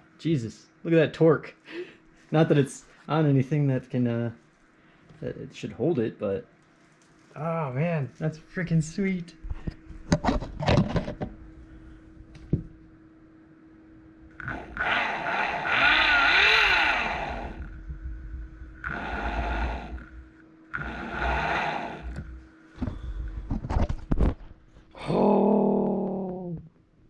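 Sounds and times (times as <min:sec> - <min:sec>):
electric bike motor whine: 0:14.3 - 0:23.6.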